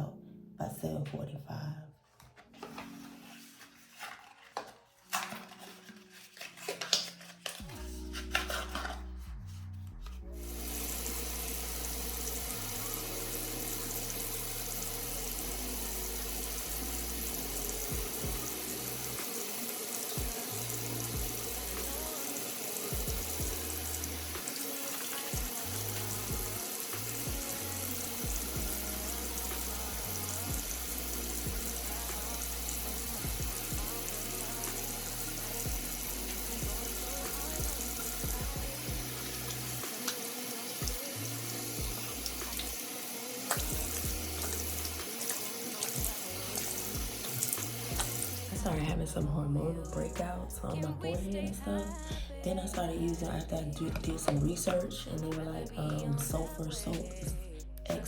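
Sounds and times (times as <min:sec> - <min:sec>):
background music with bass line: 0:07.6 - 0:19.2, 0:20.2 - 0:22.2, 0:22.9 - 0:24.5, 0:25.3 - 0:40.1, 0:40.8 - 0:42.8, 0:43.5 - 0:45.1, 0:45.9 - 0:58.0.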